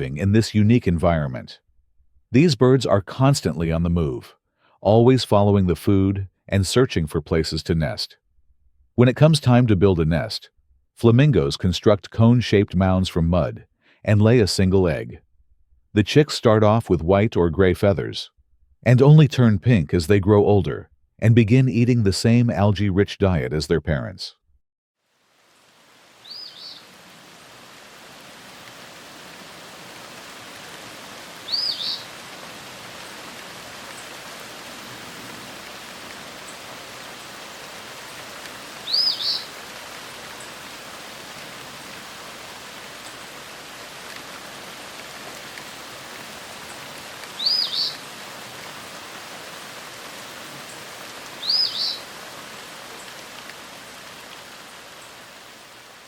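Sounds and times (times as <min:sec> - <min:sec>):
outdoor ambience hiss: 0:25.0 - 0:56.0
small bird double chirp: 0:31.5 - 0:32.1, 0:38.8 - 0:39.5, 0:47.4 - 0:48.0, 0:51.4 - 0:52.0.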